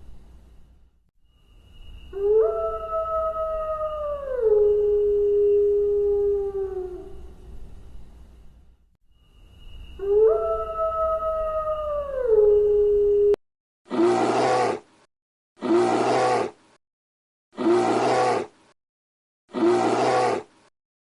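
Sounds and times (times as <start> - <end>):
dog howling: 2.2 - 7.1, 10.0 - 13.4.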